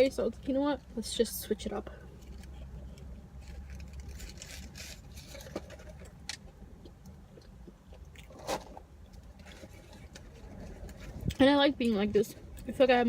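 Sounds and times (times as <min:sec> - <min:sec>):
person chewing food: 0:05.6 - 0:11.4.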